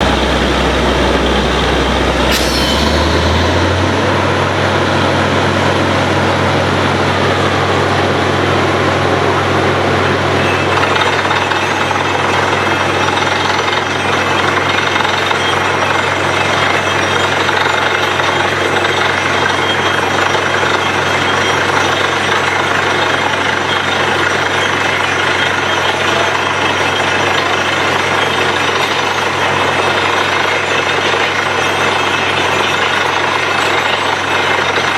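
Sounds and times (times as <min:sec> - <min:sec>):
dense mechanical clatter: 0:00.0 - 0:07.6.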